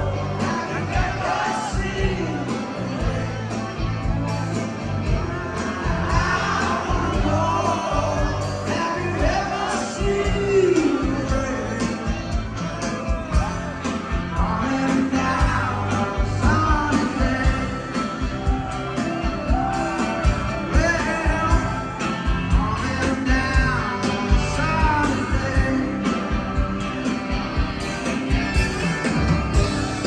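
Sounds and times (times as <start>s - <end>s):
rock song with male vocals: 0.0s - 30.0s
steady drum beat: 0.0s - 30.0s.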